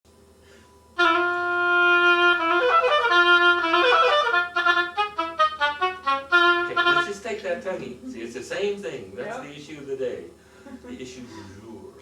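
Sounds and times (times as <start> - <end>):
oboe playing: 1.0 - 7.3.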